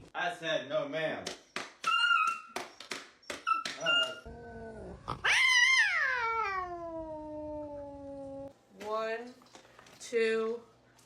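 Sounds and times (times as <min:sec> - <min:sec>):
dog howling: 0:03.6 - 0:08.5.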